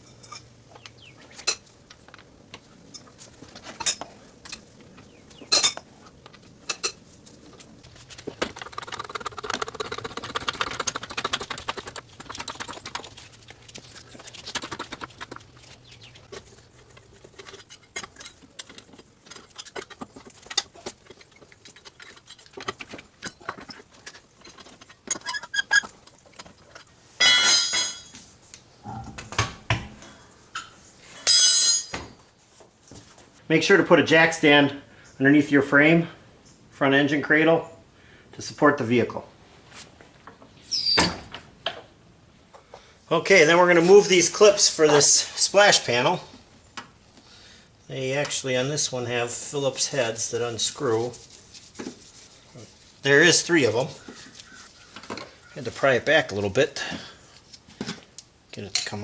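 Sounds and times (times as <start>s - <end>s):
metallic clinks of tools: 30.6s - 32.4s.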